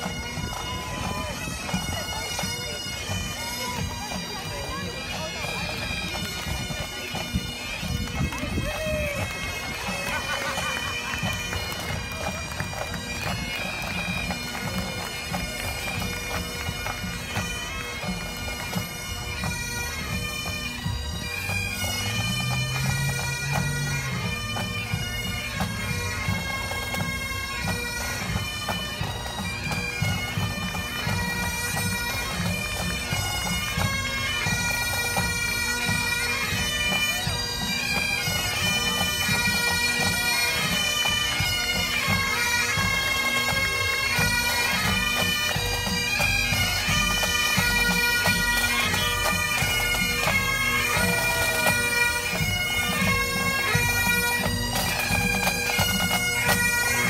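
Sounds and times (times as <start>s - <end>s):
bagpipes playing a tune: 0.0s - 57.0s
drums beating: 49.0s - 56.6s.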